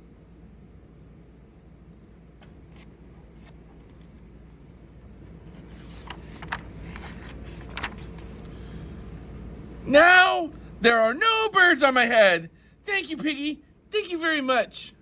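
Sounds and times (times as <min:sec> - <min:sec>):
faint steady hum: 0:00.0 - 0:15.0
pages turning: 0:02.4 - 0:08.8.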